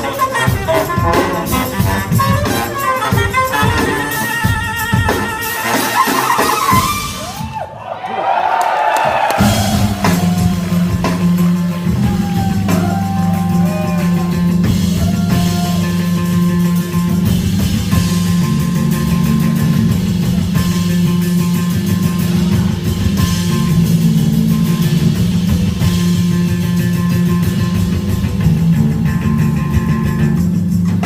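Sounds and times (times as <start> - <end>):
drums: 0.0 - 31.0.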